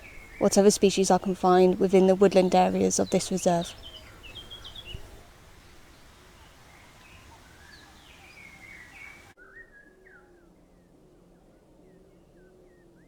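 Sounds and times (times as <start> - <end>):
birds chirping and whistling: 0.0 - 10.5
lower repeated bird calls: 0.0 - 13.0
light hiss: 1.5 - 9.4.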